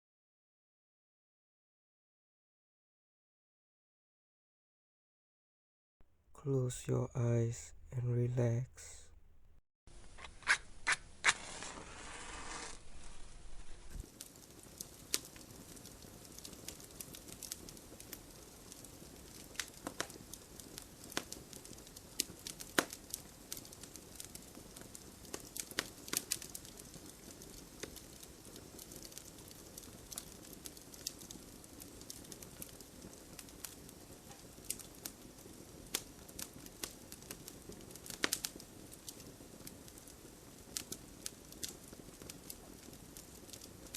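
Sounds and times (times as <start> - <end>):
hiss of flames: 11.4 - 17.7
wood crackling and popping: 12.3 - 43.9.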